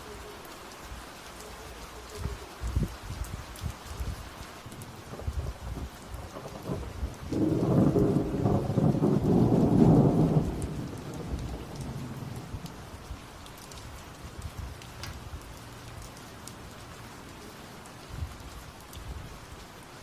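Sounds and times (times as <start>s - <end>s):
rain falling: 0.0s - 20.0s
thunder rolling: 5.0s - 12.7s.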